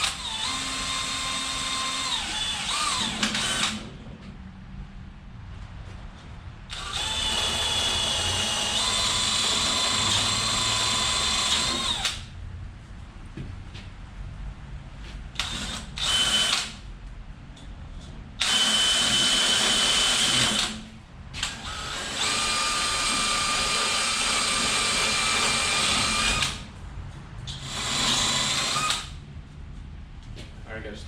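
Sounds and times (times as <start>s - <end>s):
step drill cutting metal: 0.0s - 3.8s, 6.7s - 12.2s, 18.4s - 20.8s, 21.4s - 26.6s, 27.6s - 29.1s.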